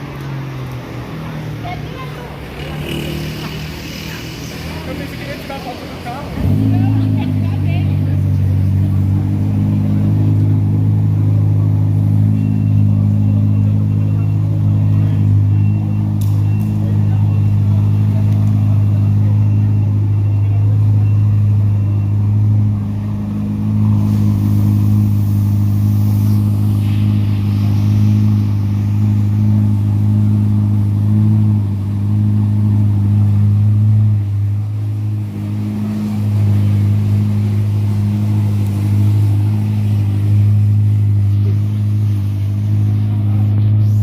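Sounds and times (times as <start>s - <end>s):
tyres hissing on wet road: 0.0s - 15.4s, 16.0s - 44.0s
car engine idling: 0.0s - 44.0s.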